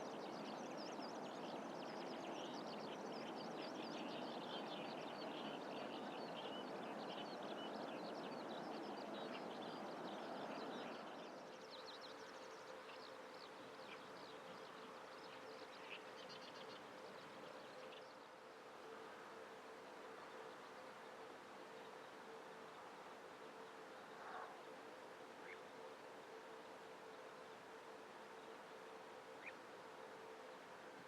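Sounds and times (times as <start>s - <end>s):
high twittering birdsong: 0.0s - 18.2s
faint steady hum: 0.0s - 31.0s.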